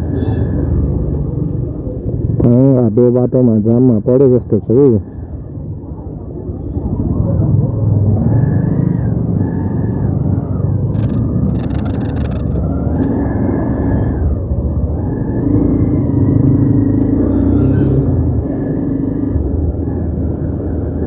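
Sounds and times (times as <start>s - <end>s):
road noise: 0.0s - 21.0s
rapid crackling clicks: 10.9s - 13.1s.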